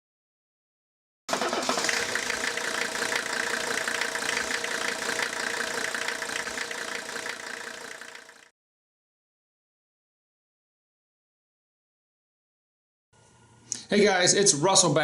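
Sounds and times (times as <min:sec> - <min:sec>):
engine running: 0:01.3 - 0:08.5.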